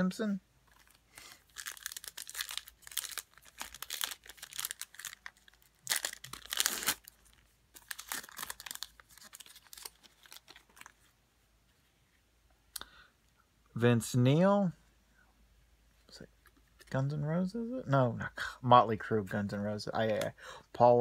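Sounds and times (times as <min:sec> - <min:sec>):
crinkling card packaging: 0:00.6 - 0:11.2.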